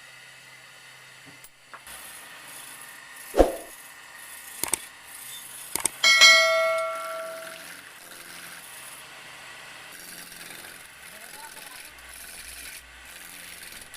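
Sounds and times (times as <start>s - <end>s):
struck metal ringing: 6.0s - 7.6s.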